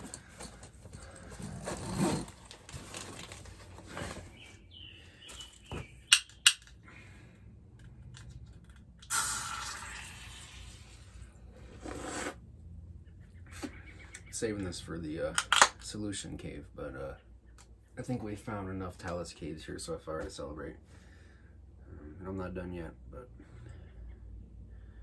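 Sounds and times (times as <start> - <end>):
rustling and handling of gear: 0.0 - 6.0.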